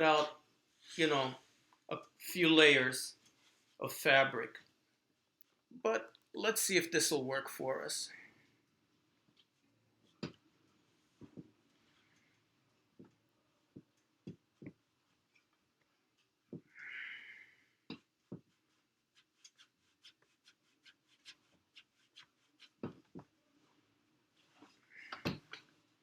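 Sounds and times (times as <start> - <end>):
fabric rustle: 3.1 - 3.8
fabric being folded by hand: 17.8 - 26.0.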